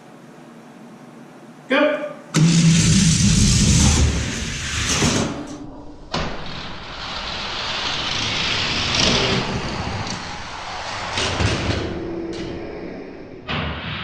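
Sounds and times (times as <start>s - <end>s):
toy cars rolling down track: 6.3s - 12.0s.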